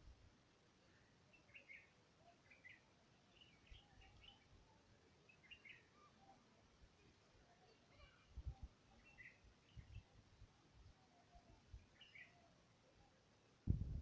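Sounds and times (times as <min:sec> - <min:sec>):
faint bird chirps: 0:00.8 - 0:13.6
soft low thumps: 0:13.7 - 0:14.0.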